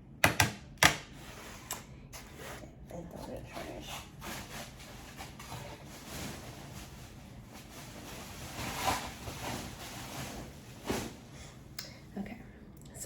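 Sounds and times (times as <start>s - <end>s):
food packaging rustling: 3.6s - 11.3s.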